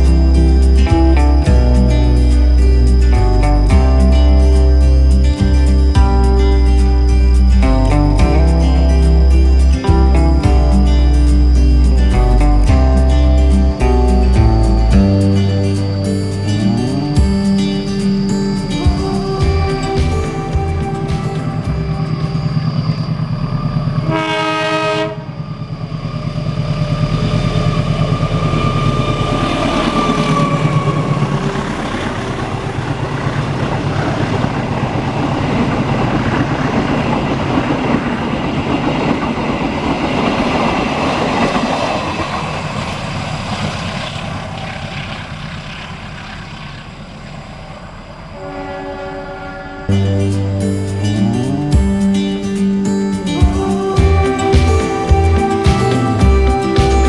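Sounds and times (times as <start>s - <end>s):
locomotive engine: 0.0s - 57.0s
train wheels rumbling and clattering: 5.4s - 47.9s
train horn blast: 24.0s - 25.5s, 48.3s - 50.2s, 53.3s - 57.0s.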